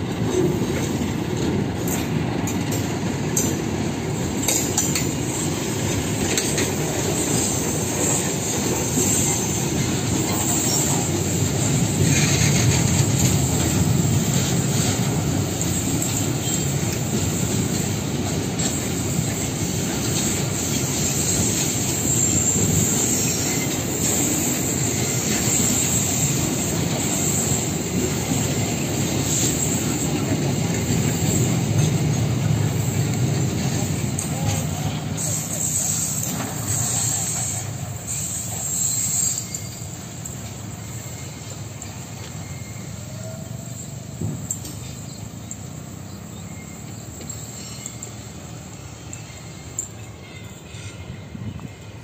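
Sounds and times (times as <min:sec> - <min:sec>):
train wheels rumbling on rails: 0:00.0 - 0:52.0
high wheel squeal: 0:04.0 - 0:52.0
clicks at rail joints: 0:44.2 - 0:45.7.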